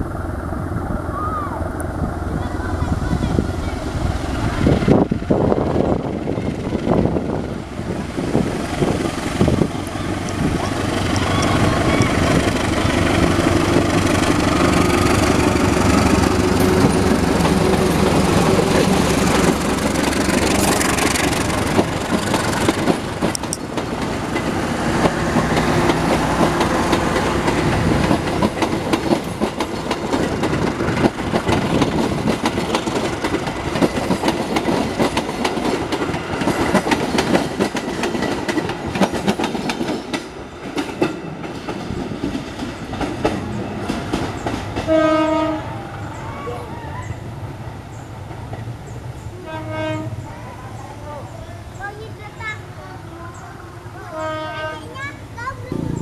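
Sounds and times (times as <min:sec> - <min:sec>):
locomotive engine drone: 0:00.0 - 0:32.2, 0:53.0 - 0:56.0
train wheels clickety-clack: 0:04.6 - 0:46.3.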